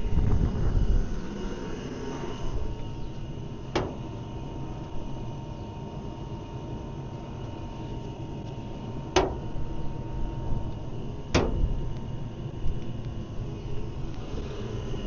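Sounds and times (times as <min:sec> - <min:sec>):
low rumble: 0:00.0 - 0:06.0, 0:07.3 - 0:15.0
sharp knocks: 0:03.8 - 0:04.1, 0:09.2 - 0:09.5, 0:11.3 - 0:11.8.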